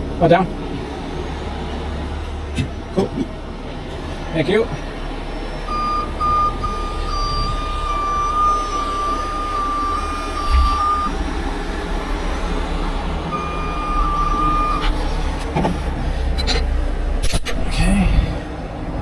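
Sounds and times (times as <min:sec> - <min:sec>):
heavy truck engine running: 0:00.0 - 0:19.0
backup alarm beeping: 0:05.5 - 0:11.2, 0:13.2 - 0:15.3.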